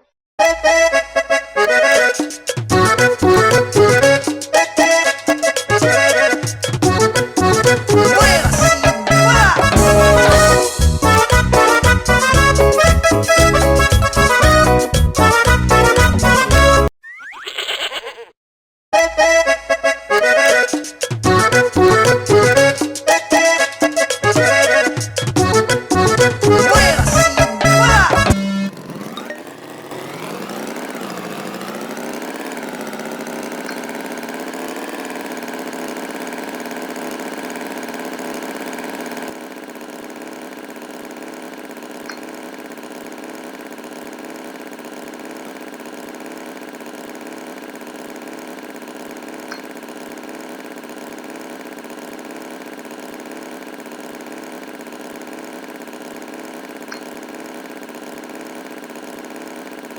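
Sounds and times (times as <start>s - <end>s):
engine idling: 5.3s - 16.9s, 25.4s - 59.9s.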